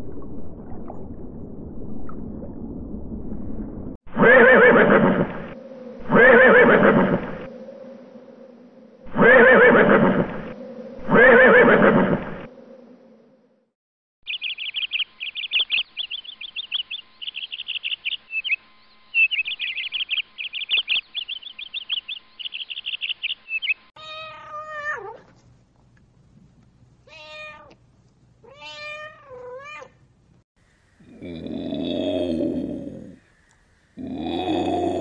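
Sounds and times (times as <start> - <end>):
small bird chirping: 14.3 - 23.9
cat meowing: 24.0 - 25.2, 27.1 - 27.8, 28.4 - 30.0.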